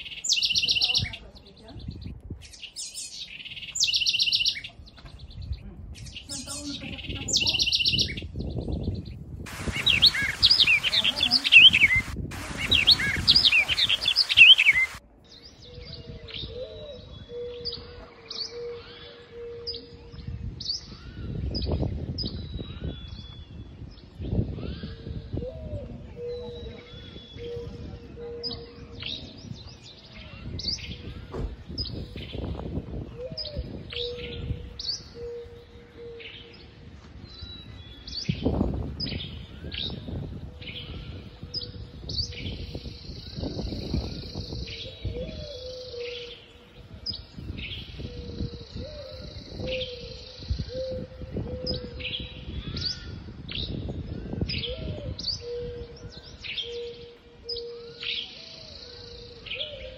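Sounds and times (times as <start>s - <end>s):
small birds chirping: 0.0s - 32.8s, 33.4s - 59.9s
wind gusting on microphone: 0.0s - 59.9s.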